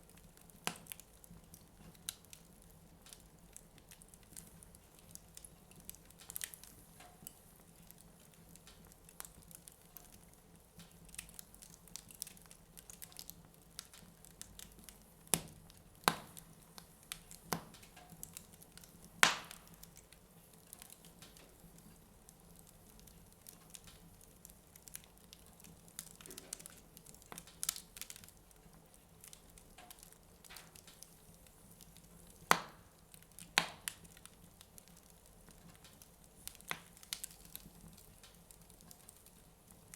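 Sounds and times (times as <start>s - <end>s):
burning wood popping: 0.0s - 39.9s
wood fire crackling: 0.0s - 39.9s.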